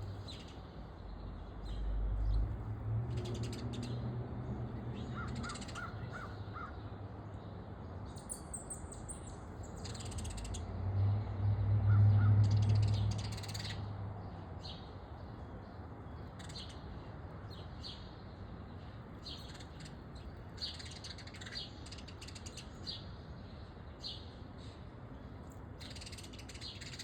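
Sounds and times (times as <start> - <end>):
birds chirping and calling: 0.0 - 0.7, 3.1 - 4.1, 4.9 - 6.8, 8.2 - 10.7, 11.9 - 13.9, 16.3 - 17.0, 19.2 - 23.1, 25.8 - 27.0.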